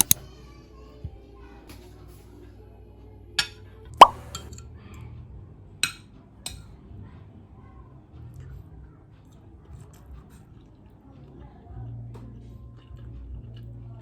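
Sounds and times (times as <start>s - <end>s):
loud plop rising in pitch: 4.0s - 4.3s.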